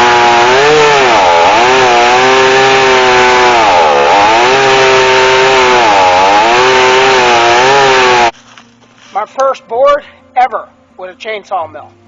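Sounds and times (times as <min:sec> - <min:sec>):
chainsaw ripping a log: 0:00.0 - 0:08.4.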